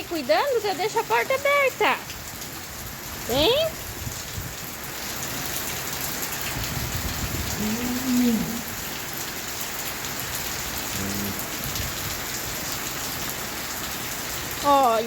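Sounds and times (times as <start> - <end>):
heavy rain pouring: 0.0 - 15.0
short low call: 10.9 - 11.5.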